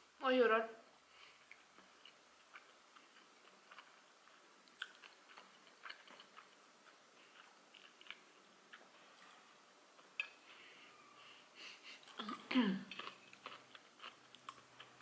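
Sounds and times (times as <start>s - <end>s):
faint chewing mouth clicks: 1.2s - 9.4s, 10.0s - 10.6s, 12.0s - 15.0s.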